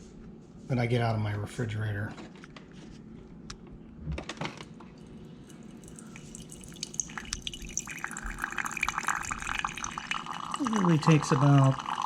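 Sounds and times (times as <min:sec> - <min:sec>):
water trickling into a cup: 0:05.0 - 0:12.0.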